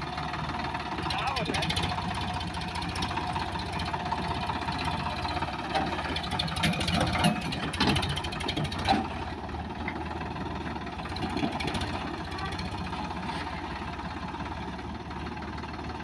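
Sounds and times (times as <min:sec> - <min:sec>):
diesel engine chugging: 0:00.0 - 0:16.0.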